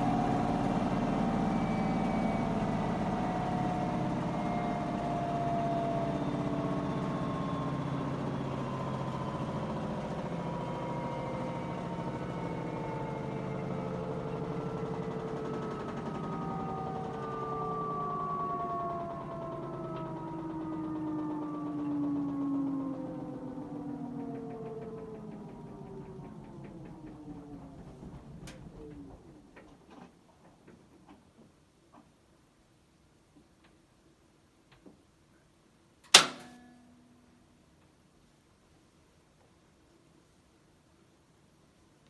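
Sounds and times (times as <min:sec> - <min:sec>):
washing machine spinning down: 0:00.0 - 0:29.5.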